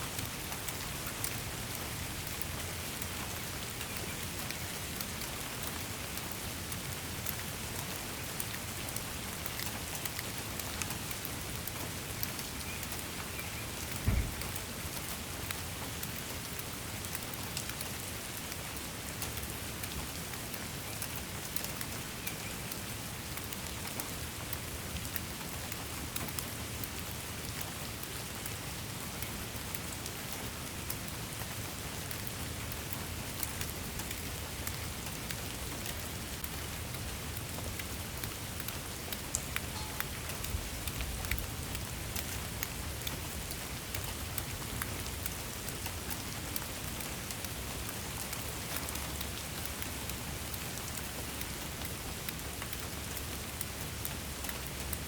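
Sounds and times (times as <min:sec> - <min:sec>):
steady rain falling: 0:00.0 - 0:55.0
low thump: 0:14.0 - 0:14.6.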